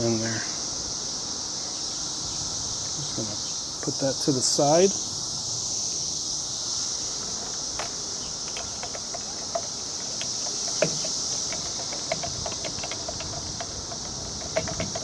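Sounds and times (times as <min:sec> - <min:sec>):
insects chirring: 0:00.0 - 0:15.0
light clicks and taps: 0:07.8 - 0:15.0.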